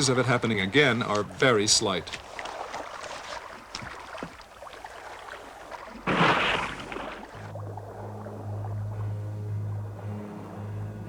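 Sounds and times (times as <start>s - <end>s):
water sloshing around a boat: 0.0s - 11.0s
loud splash: 2.2s - 9.1s
low droning music note: 7.5s - 11.0s.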